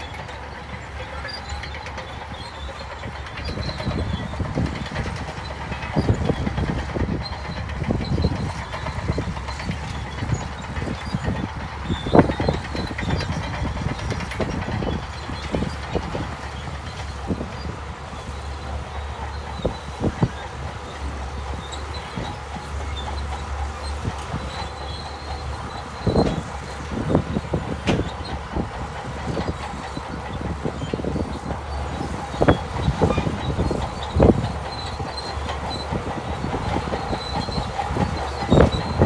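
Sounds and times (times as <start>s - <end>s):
bulldozer diesel engine hum: 0.0s - 39.0s
metal clanks and knocks: 23.9s - 36.0s.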